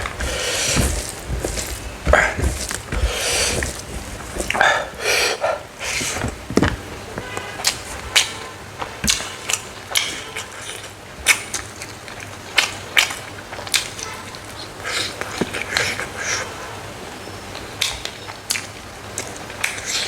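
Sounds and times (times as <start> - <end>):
crunchy chewing: 0.0 - 6.9.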